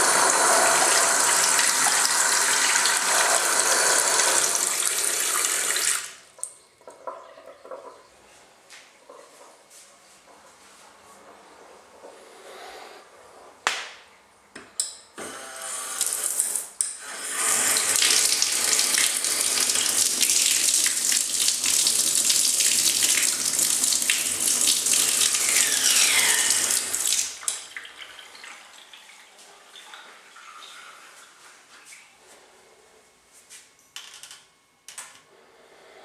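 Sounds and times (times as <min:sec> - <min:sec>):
tap water rushing: 0:00.0 - 0:08.0, 0:17.3 - 0:29.1.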